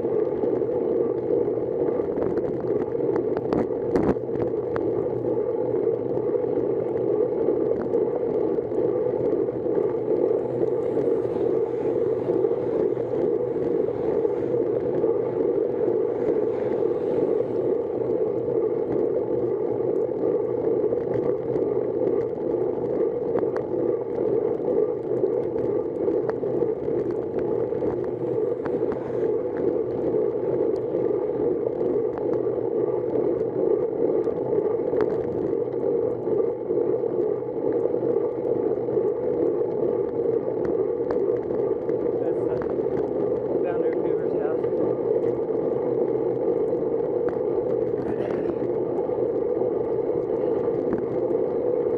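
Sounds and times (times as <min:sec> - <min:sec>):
bicycle wind and tyre noise: 0:00.0 - 0:51.9
small ticks: 0:37.2 - 0:45.4.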